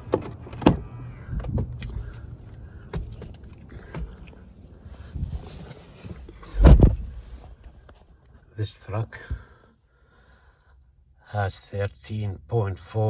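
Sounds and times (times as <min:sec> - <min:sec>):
knocks and clicks in truck cab: 0:00.0 - 0:04.6, 0:06.3 - 0:07.2
low rumble: 0:04.5 - 0:07.6
heavy thump: 0:06.4 - 0:07.5.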